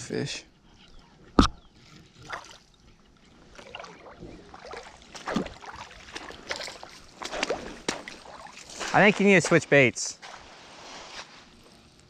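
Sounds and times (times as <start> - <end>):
splashes in shallow creek water: 1.8 - 2.8, 3.4 - 10.8.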